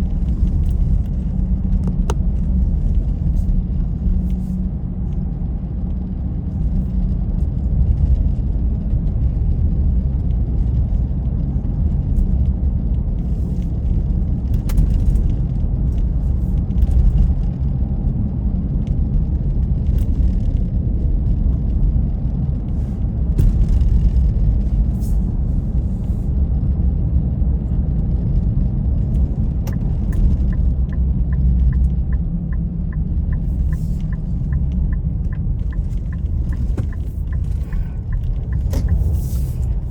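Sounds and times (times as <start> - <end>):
car engine and road noise: 0.0 - 39.9
light regular ticking: 29.7 - 39.9.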